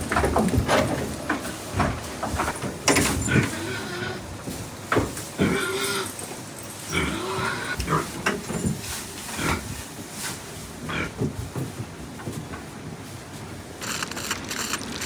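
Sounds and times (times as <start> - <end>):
farm animal calling: 3.0 - 4.5, 5.4 - 8.2.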